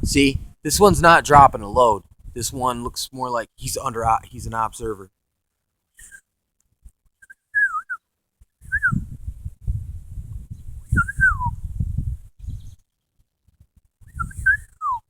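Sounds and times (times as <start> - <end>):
man whistling: 7.2 - 8.0, 8.6 - 9.1, 10.9 - 11.6, 14.1 - 15.0.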